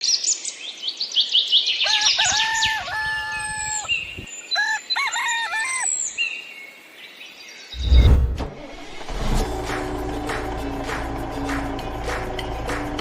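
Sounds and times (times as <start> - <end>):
rooster crowing: 1.8 - 3.9, 4.5 - 6.0.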